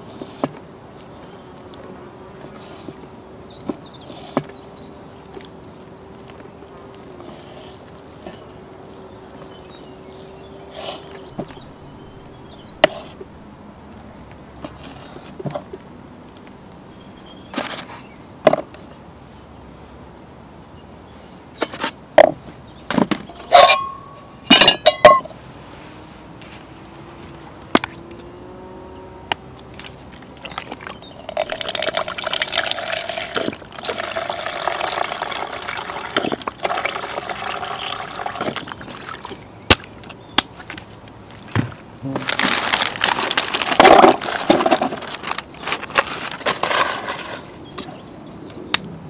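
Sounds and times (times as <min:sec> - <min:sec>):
cookware clinking and knocking: 0:23.4 - 0:25.3
liquid being poured: 0:30.2 - 0:39.4.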